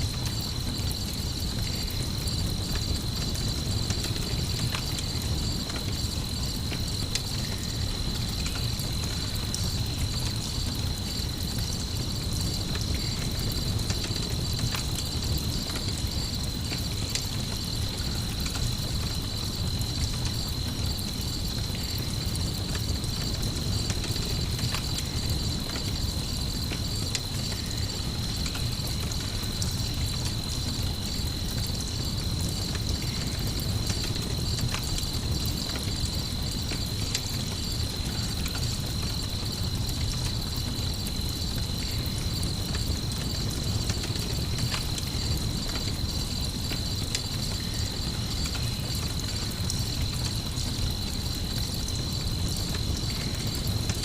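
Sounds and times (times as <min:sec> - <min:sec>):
campfire crackling and popping: 0:00.0 - 0:54.0
crickets chirring: 0:00.0 - 0:54.0.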